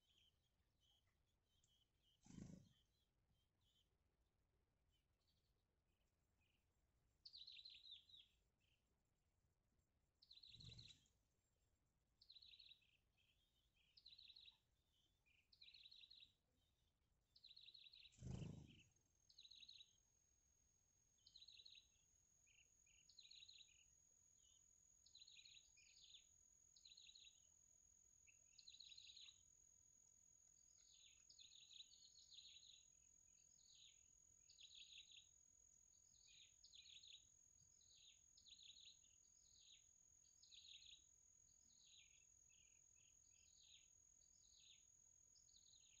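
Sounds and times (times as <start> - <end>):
small songbird chirping: 0.0 - 46.0.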